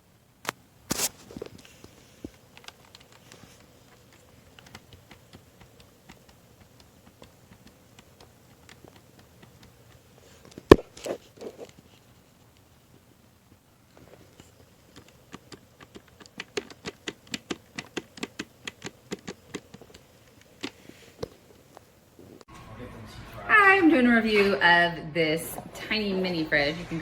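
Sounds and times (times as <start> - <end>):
small objects clicking and tapping: 0.4 - 11.9, 13.9 - 21.9.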